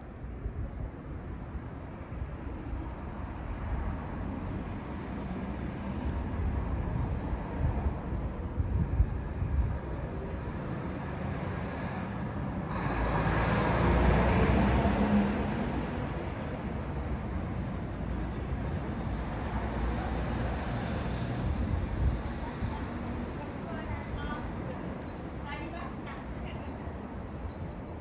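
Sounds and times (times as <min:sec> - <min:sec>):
passing vehicle rumble: 0:10.7 - 0:26.4.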